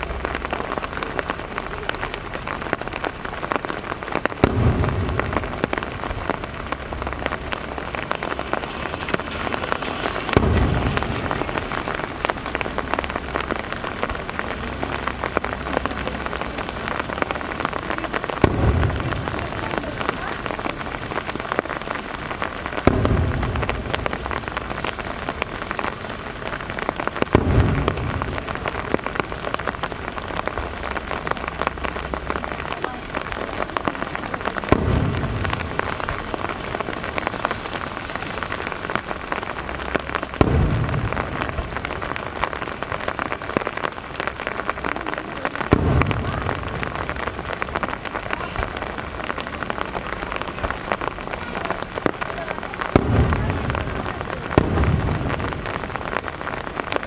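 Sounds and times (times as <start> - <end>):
rain falling: 0.0 - 57.0
firework shells booming: 2.4 - 44.9, 45.5 - 57.0.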